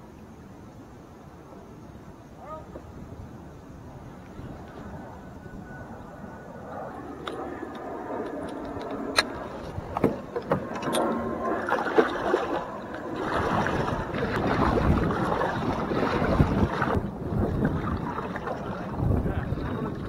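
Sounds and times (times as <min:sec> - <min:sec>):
paddle splashing water: 0:09.5 - 0:20.0.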